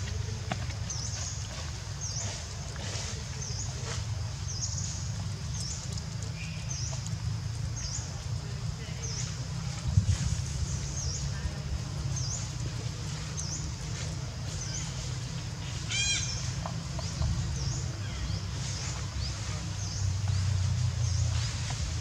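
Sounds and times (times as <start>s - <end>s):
shrill bird call: 15.9s - 16.4s.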